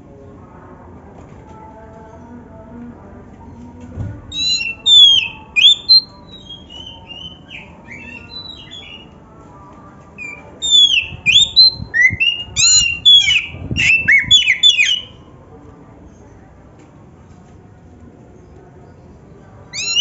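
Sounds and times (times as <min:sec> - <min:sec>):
bird singing whistled song: 0:04.3 - 0:09.1, 0:10.2 - 0:15.2, 0:19.8 - 0:20.0.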